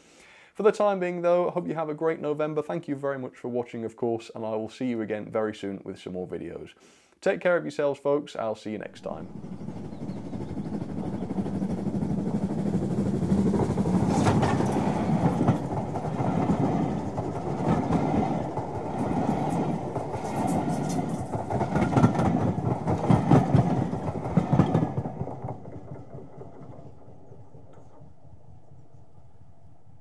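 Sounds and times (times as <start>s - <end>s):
train wheels rumbling and clacking: 8.8s - 30.0s.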